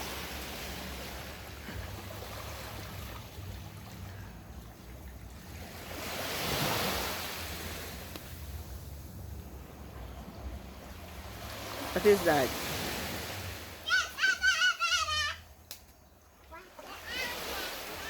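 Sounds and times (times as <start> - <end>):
sea waves breaking on beach: 0.0 - 15.4, 16.3 - 18.0
low steady rumble: 7.4 - 11.5.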